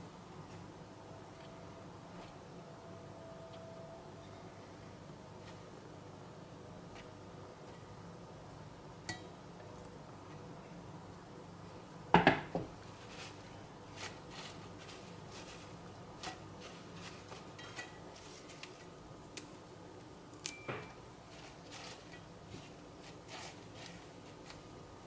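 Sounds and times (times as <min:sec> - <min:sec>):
dishes and cutlery clinking: 0:17.1 - 0:18.2.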